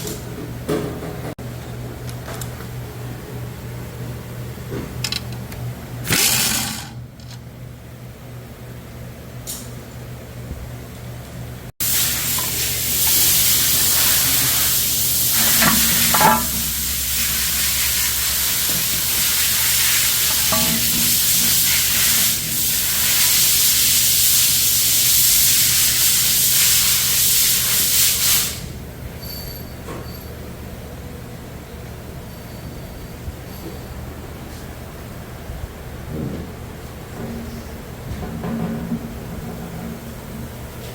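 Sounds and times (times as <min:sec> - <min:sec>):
loud steady hiss: 0:11.8 - 0:28.8.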